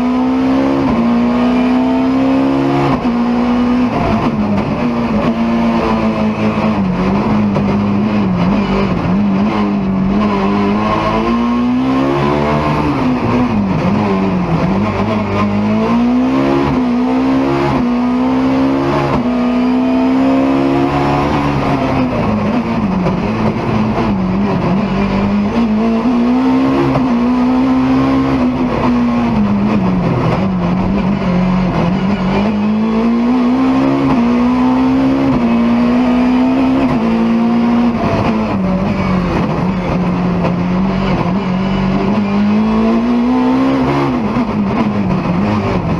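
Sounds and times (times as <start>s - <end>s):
car engine revving hard: 0.0s - 45.9s.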